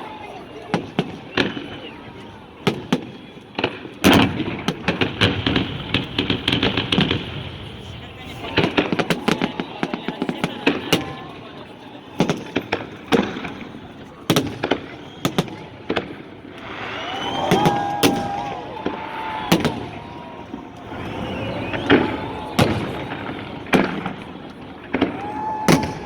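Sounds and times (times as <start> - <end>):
firework bangs: 0.6 - 26.0
firework crackling and rushing: 12.4 - 26.0.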